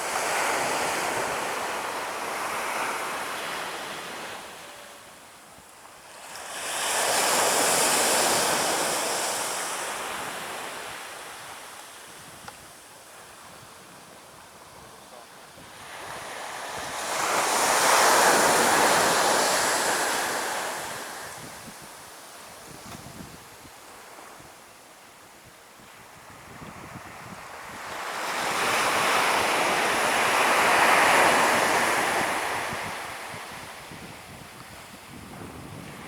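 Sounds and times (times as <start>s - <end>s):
ocean waves breaking on beach: 6.0s - 12.1s, 13.0s - 24.6s, 25.9s - 36.0s.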